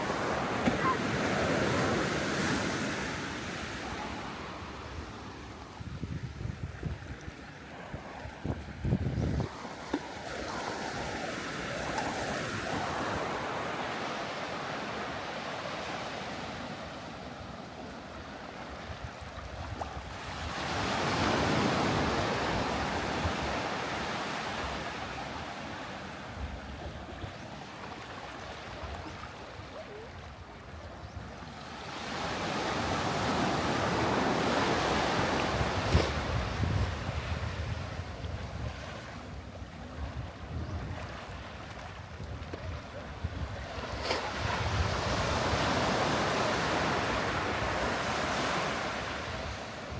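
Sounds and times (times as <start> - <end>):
waves breaking on beach: 0.0 - 5.9, 6.5 - 49.9
wind buffeting microphone: 5.7 - 9.6, 34.2 - 45.9.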